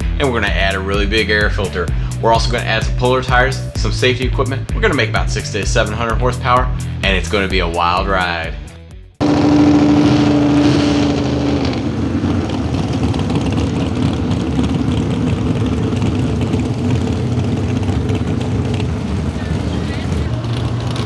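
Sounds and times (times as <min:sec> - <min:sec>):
tractor engine running hard: 0:09.2 - 0:21.0.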